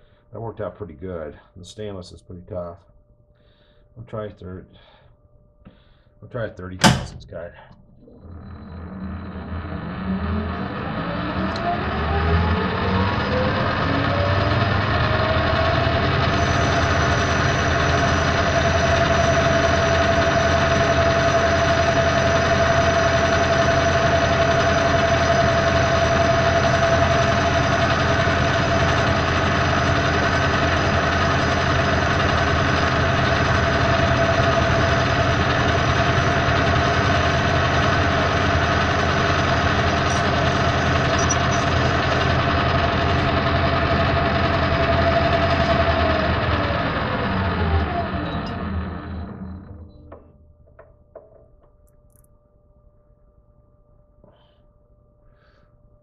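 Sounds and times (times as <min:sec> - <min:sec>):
metal lathe whining: 0:06.8 - 0:50.8.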